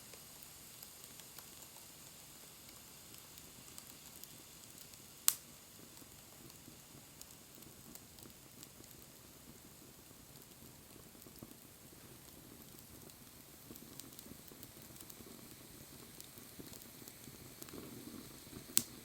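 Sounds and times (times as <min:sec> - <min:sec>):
wood fire crackling: 0:00.0 - 0:19.0
sharp pop of fire: 0:04.7 - 0:05.5, 0:18.6 - 0:19.0.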